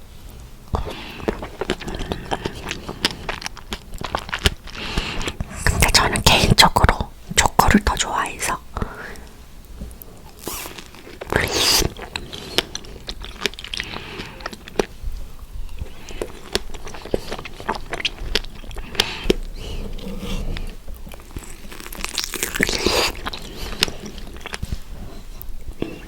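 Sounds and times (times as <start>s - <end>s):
chewing with wet mouth clicks: 0.7s - 5.5s, 11.0s - 26.0s
biting into strawberries: 10.2s - 15.0s, 15.7s - 26.0s.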